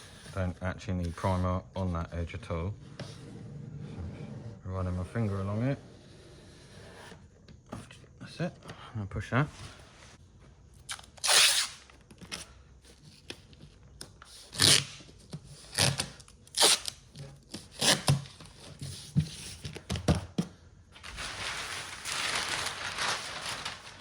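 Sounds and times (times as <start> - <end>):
masking tape tearing: 10.9 - 11.9, 14.6 - 15.0, 15.7 - 17.0, 17.7 - 18.3
steady rustle: 21.0 - 24.0.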